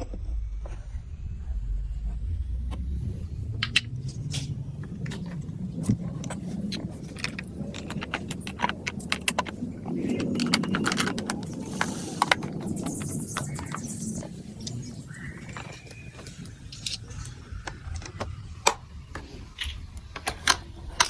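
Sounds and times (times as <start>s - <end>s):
marbles rolling rumble: 3.2s - 21.0s
marbles clicking on plastic track: 6.2s - 13.9s.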